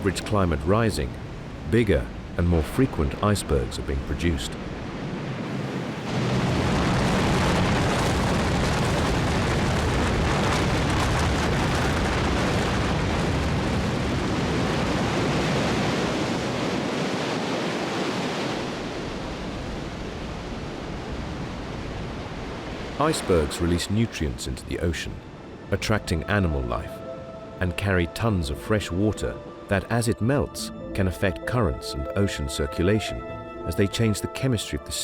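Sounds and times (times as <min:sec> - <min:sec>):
ice collapsing roar: 0:06.1 - 0:14.9.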